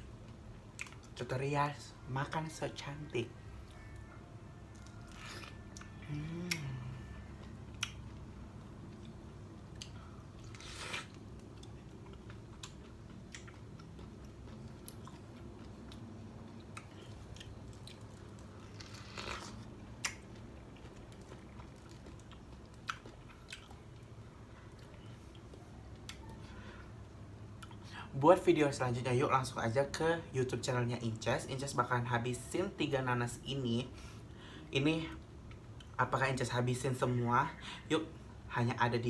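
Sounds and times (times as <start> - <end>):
person chewing crunchy fruit: 4.7 - 27.9
person humming: 5.8 - 7.3.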